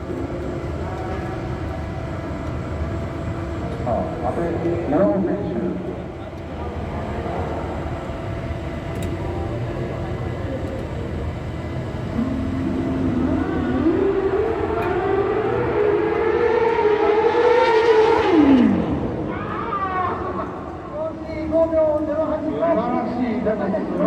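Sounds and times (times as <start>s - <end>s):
race car engine pulling hard: 12.2s - 20.6s.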